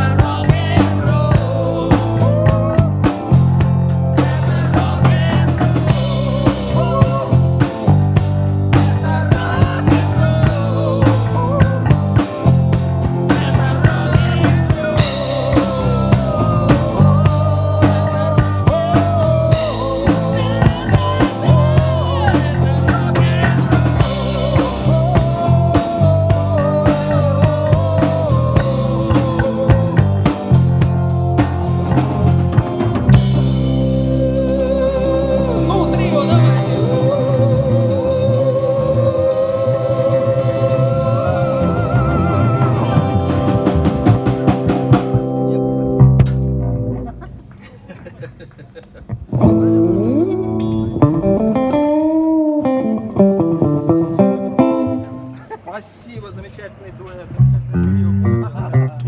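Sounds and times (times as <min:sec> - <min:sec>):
drum kit beat: 0:00.0 - 0:46.6
bass line: 0:00.0 - 0:47.5, 0:57.4 - 0:59.0.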